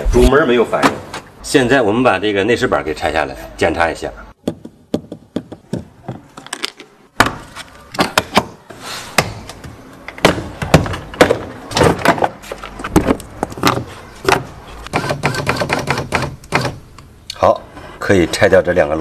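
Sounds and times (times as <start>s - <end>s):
plastic panel cracking and knocking: 10.2s - 14.5s.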